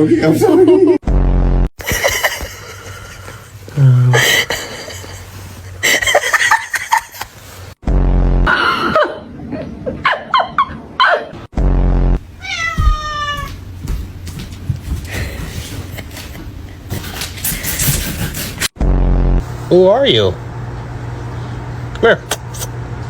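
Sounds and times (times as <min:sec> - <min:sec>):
heavy low thumps: 0:07.8 - 0:08.5, 0:11.5 - 0:15.0
cat meowing: 0:12.4 - 0:13.6.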